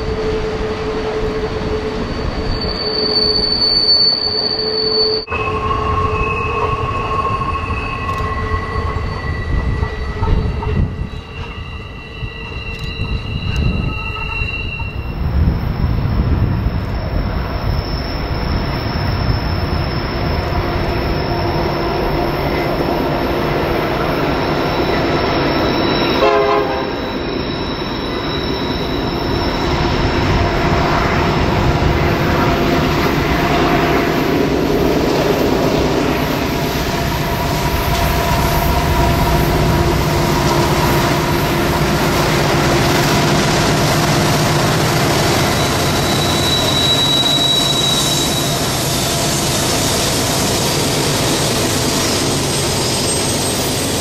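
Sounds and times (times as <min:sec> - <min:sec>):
rumble of passing train cars: 0:00.0 - 0:54.0
train wheels squealing: 0:00.0 - 0:54.0
diesel locomotives rumbling: 0:05.1 - 0:54.0.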